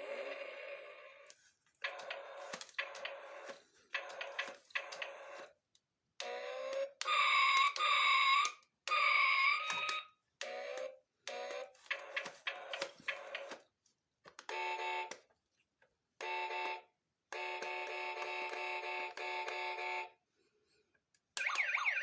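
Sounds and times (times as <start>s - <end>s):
electronic alarm tones: 21.4s - 22.0s.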